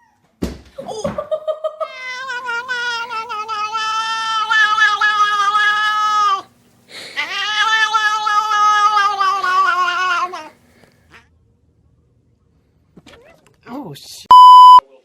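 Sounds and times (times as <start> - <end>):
cat yowling: 1.8 - 11.2.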